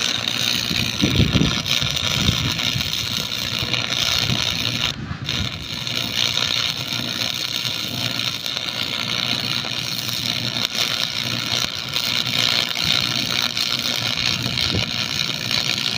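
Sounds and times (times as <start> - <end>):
welding arc crackling: 0.0 - 15.9.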